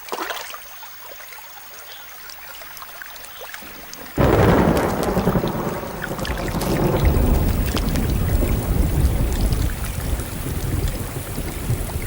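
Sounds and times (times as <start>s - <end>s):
heavy rain hissing: 3.6s - 12.0s
deep rumble of thunder: 3.7s - 12.0s.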